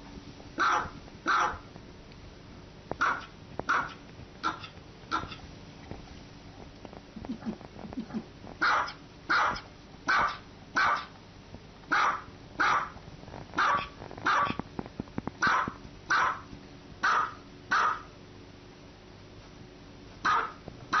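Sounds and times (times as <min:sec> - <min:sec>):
small dog barking: 0:00.6 - 0:01.7, 0:03.0 - 0:05.4, 0:07.3 - 0:11.2, 0:11.9 - 0:13.0, 0:13.6 - 0:14.6, 0:15.4 - 0:18.1, 0:20.2 - 0:21.0.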